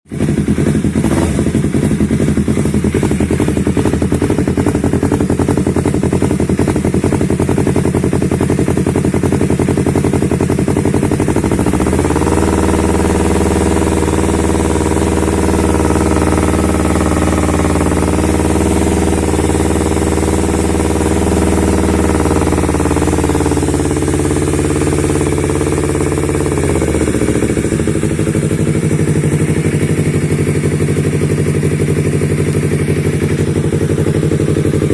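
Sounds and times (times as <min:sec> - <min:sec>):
motorcycle engine idling and revving: 0:00.0 - 0:34.9.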